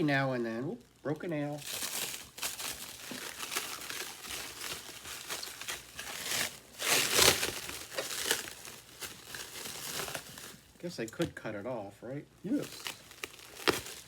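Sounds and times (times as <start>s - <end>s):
packaging crinkling and rustling: 0.0s - 11.3s, 12.4s - 14.0s.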